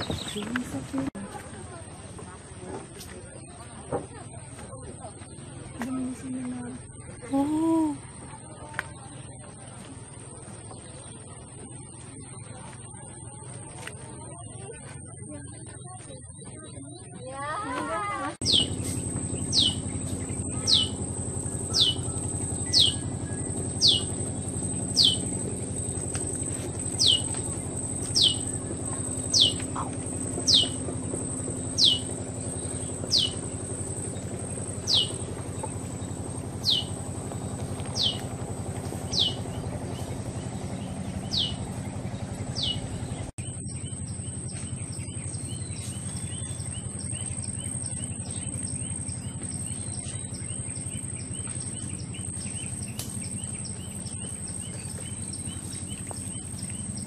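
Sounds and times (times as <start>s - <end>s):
low hum: 0.0s - 57.0s
steady high whine: 18.2s - 57.0s
bird whistling: 18.4s - 19.8s, 21.6s - 24.2s, 24.9s - 25.3s, 26.9s - 28.6s, 29.3s - 30.8s, 31.7s - 32.1s, 34.8s - 35.2s, 36.6s - 37.0s
faint bird chirps: 18.4s - 38.4s.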